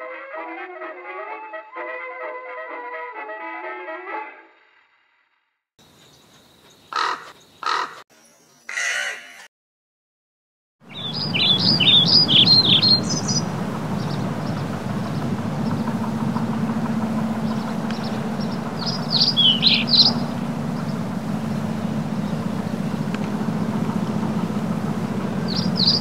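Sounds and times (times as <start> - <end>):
small birds chirping: 5.8 - 9.4, 10.9 - 26.0
low outdoor rumble: 10.8 - 26.0.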